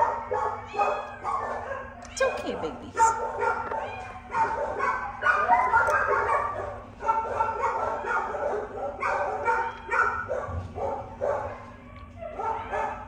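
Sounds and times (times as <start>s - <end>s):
dogs barking and yipping: 0.0s - 13.0s
dog whimpering: 0.6s - 6.3s.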